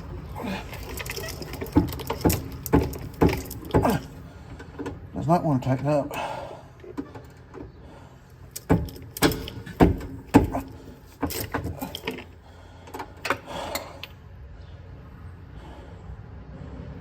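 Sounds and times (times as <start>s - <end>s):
metal tools clanking: 0.0s - 4.2s, 8.5s - 14.2s.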